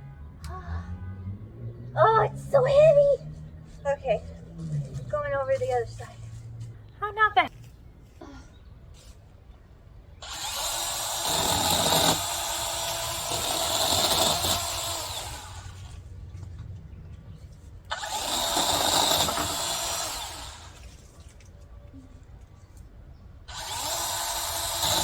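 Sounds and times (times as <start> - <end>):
chainsaw cutting wood: 10.2 - 16.0, 17.9 - 20.9, 23.5 - 25.0.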